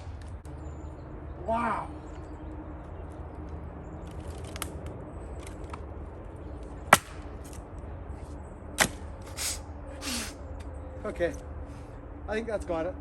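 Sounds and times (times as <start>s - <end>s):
axe striking wood: 6.9s - 7.6s, 8.8s - 9.0s.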